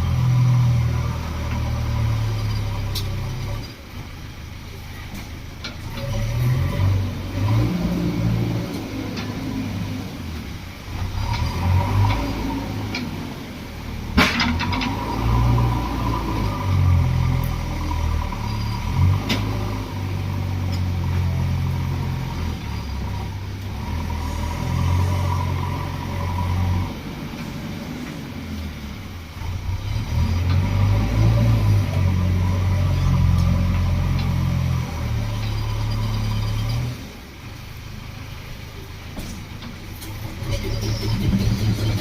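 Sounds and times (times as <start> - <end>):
diesel engines revving: 0.0 - 42.0
metal clank: 14.1 - 15.2.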